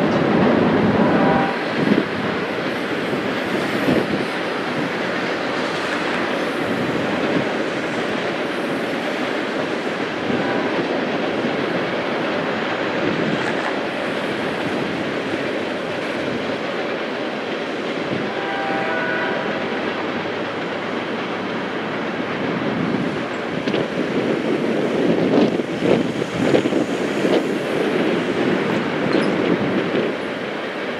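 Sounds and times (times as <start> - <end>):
distant train horn: 0.0 - 4.8, 9.9 - 11.7, 18.1 - 20.7
train wheels rumbling on rails: 0.0 - 30.9.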